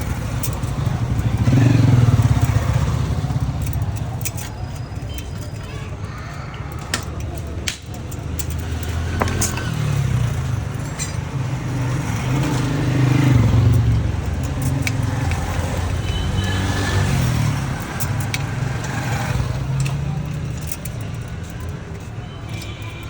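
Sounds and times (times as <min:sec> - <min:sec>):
vehicle engine rumbling: 0:00.0 - 0:23.0
light clicks: 0:11.9 - 0:23.0.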